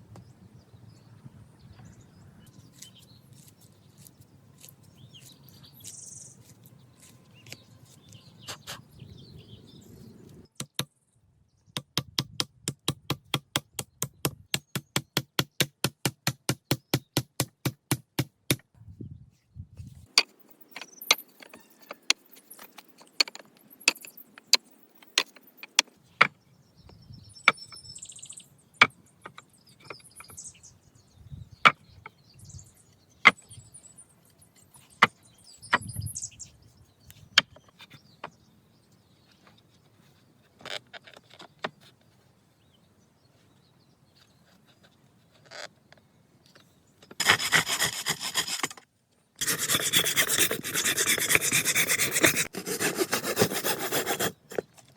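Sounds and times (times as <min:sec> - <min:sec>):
hand tool striking wood: 0:11.8 - 0:18.7.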